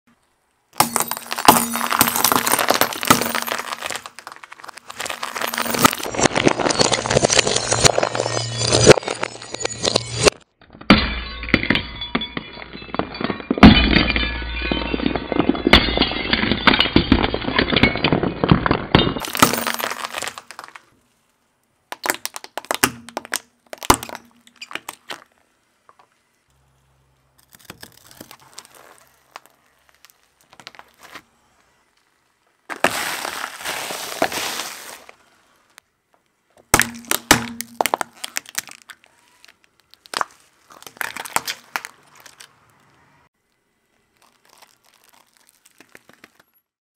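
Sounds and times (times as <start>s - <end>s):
glass crunching under tyres: 0.2s - 26.5s, 27.4s - 35.8s, 36.5s - 46.8s
sharp cracks of breaking: 36.7s - 42.5s.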